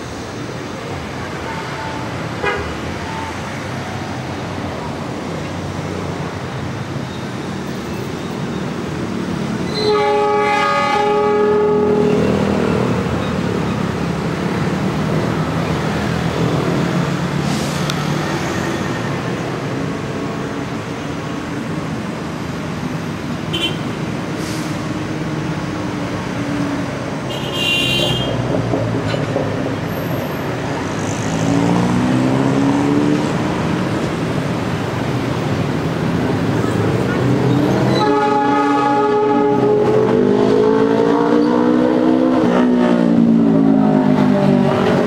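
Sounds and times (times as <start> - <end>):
train horn: 9.7 - 12.6, 37.9 - 40.2.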